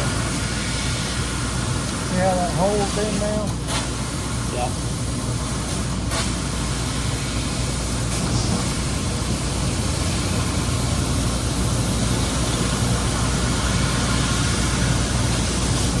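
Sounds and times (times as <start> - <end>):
laser cutter humming and hissing: 0.0 - 16.0.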